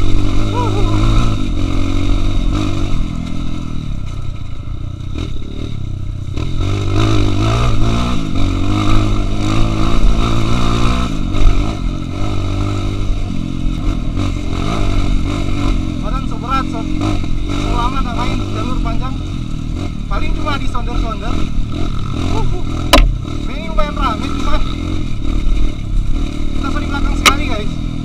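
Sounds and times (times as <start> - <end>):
motorcycle engine revving: 0.0 - 28.0
knocks: 22.9 - 23.2.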